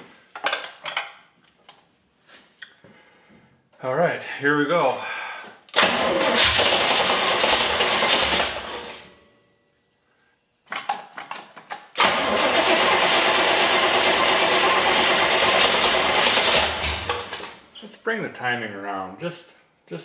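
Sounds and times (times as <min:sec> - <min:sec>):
engine cranking and sputtering: 0:05.8 - 0:08.9, 0:12.0 - 0:17.6.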